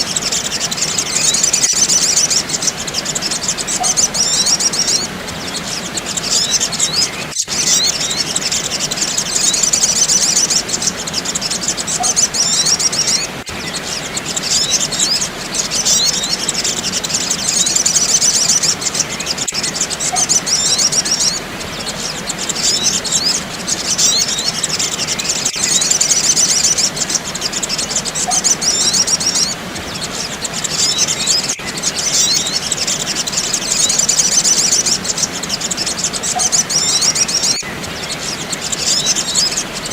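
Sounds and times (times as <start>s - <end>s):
birds twittering and chirping: 0.0s - 39.9s.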